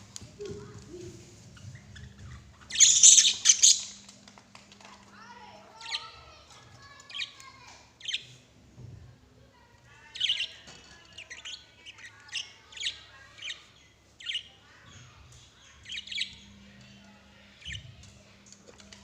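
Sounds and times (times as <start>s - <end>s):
lovebirds chirping: 0.6s - 4.1s, 10.0s - 18.0s.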